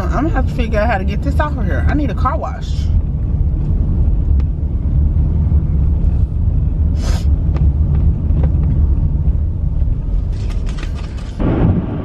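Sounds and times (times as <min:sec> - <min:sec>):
car road and engine rumble: 0:00.0 - 0:12.0
short hiss: 0:07.0 - 0:07.3.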